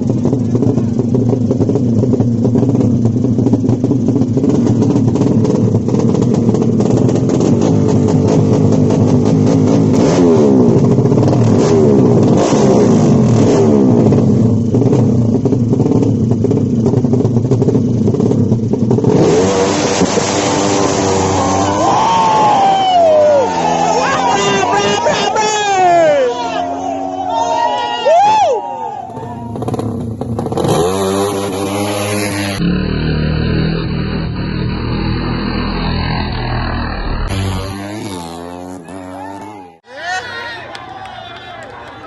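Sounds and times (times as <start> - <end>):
motorcycle engines revving: 0.0 - 42.0.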